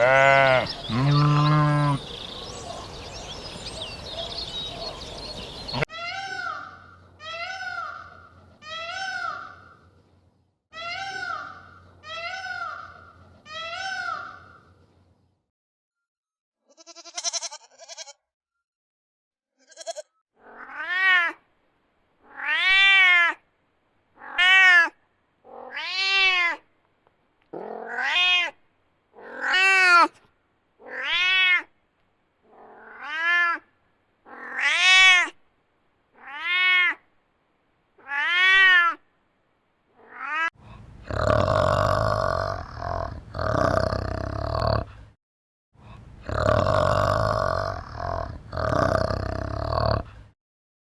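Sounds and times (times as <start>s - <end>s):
animal calling: 0.0s - 9.6s, 46.2s - 50.1s.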